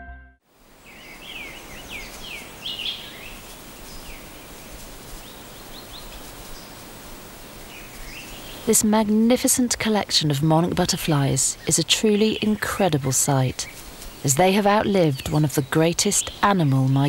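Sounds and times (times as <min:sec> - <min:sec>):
background music: 0:00.0 - 0:00.4
steady background hiss: 0:00.5 - 0:17.0.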